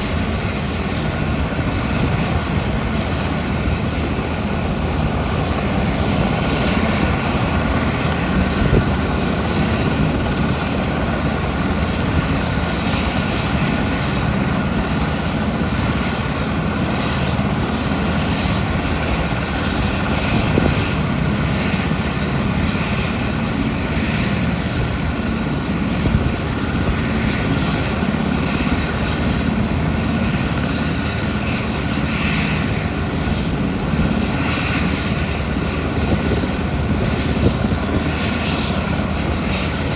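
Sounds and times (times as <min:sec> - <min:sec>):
helicopter engines and rotor: 0:00.0 - 0:39.9.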